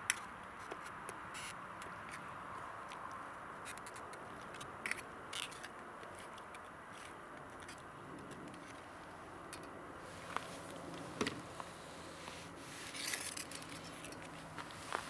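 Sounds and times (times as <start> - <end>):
steady hiss: 10.0 - 15.0.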